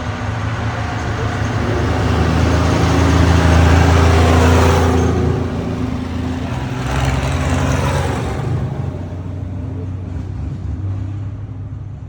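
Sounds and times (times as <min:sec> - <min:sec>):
tractor engine passing: 0:00.0 - 0:11.5
another engine: 0:00.0 - 0:12.0.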